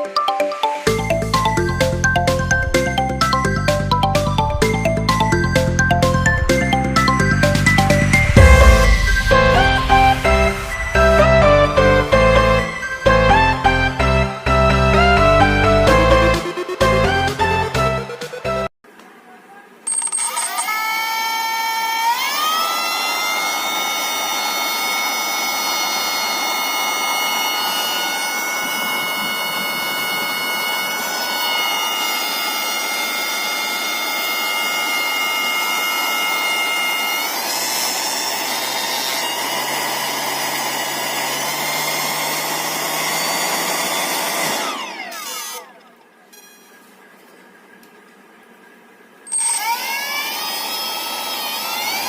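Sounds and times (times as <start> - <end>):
motor high whine: 0.8 - 18.7, 20.3 - 47.9, 48.5 - 52.0
rush of air: 8.1 - 13.1.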